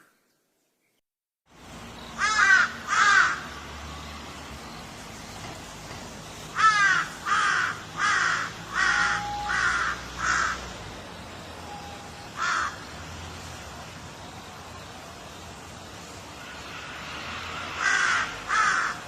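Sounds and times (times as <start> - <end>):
steady background hiss: 0.0 - 19.0
crow cawing: 2.2 - 3.6, 6.6 - 10.7, 12.4 - 12.9, 17.7 - 19.0.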